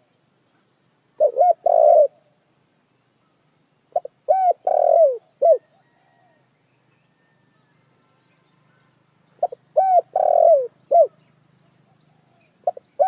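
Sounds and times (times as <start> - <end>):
dove cooing: 1.2 - 2.4, 3.9 - 6.4, 9.4 - 13.0.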